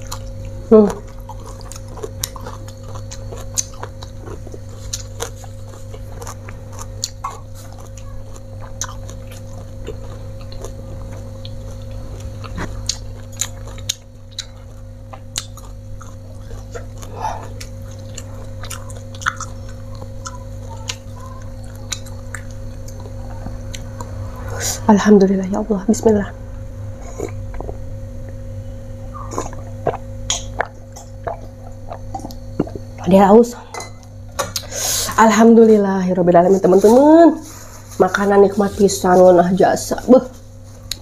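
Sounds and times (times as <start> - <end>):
chewing food: 0.0 - 24.4, 29.1 - 33.1
steady low hum: 0.0 - 41.0.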